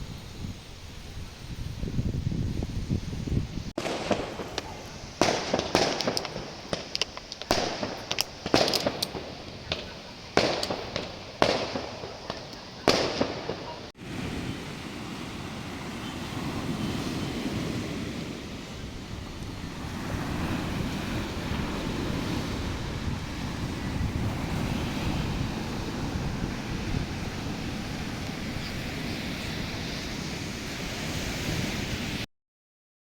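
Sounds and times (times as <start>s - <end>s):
sharp bangs and crackles: 3.8s - 13.9s.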